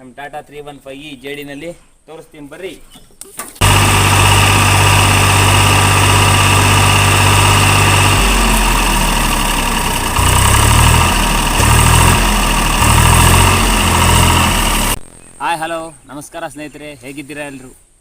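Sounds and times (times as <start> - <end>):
backhoe diesel engine running: 3.6 - 15.0.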